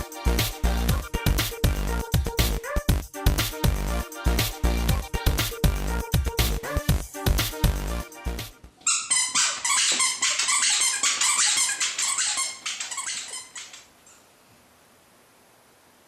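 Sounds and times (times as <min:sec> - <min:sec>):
squeaky dog toy squeaking: 0:08.8 - 0:13.9.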